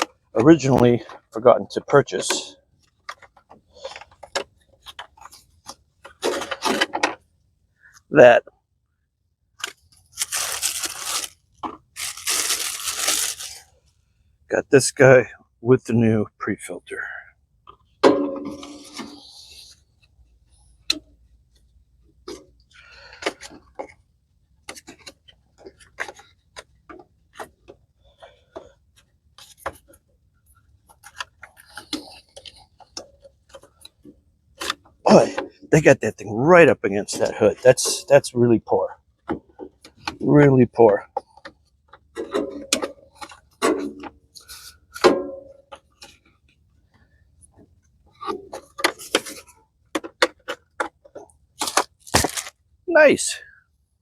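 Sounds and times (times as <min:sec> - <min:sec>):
parts clicking and knocking: 0:40.9 - 0:52.6.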